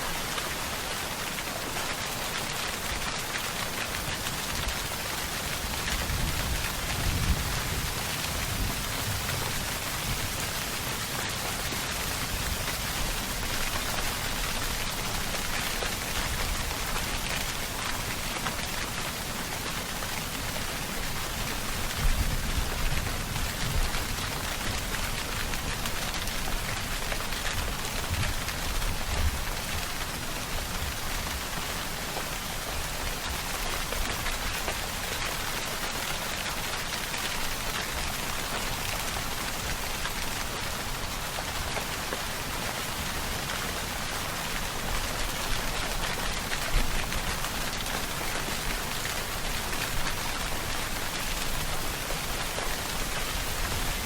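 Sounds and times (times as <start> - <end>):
heavy rainfall: 0.0 - 54.0.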